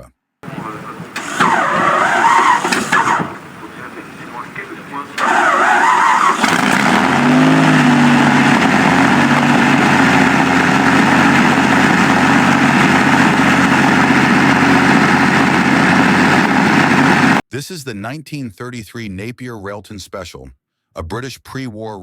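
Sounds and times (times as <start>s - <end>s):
aero engine running loud: 0.4s - 17.4s.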